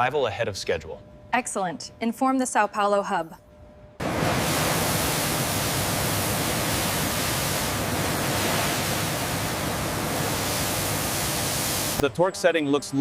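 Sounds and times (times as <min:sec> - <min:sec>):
steady rushing noise: 0:04.0 - 0:12.0.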